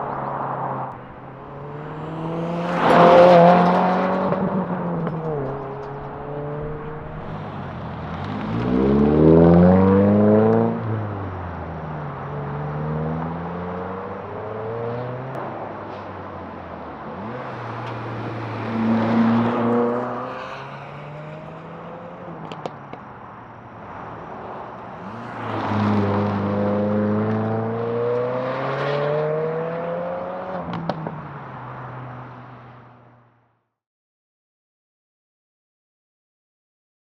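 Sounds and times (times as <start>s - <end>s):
car engine accelerating: 0.0s - 15.7s, 16.4s - 23.0s, 24.8s - 31.2s.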